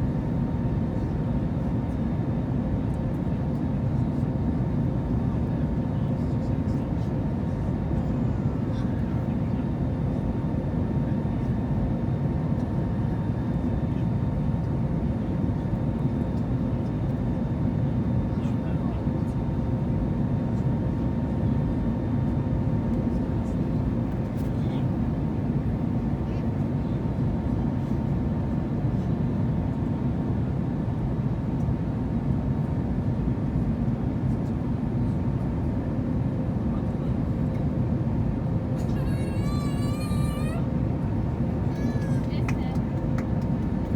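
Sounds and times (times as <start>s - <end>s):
engine and airflow noise: 22.2s - 43.9s
airplane cabin rumble: 37.0s - 43.9s.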